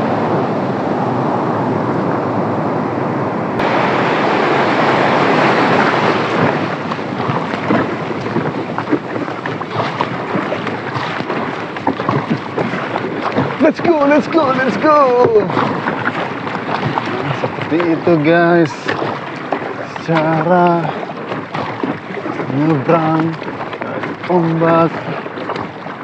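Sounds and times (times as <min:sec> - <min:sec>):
waves rushing and splashing: 0:00.0 - 0:26.0.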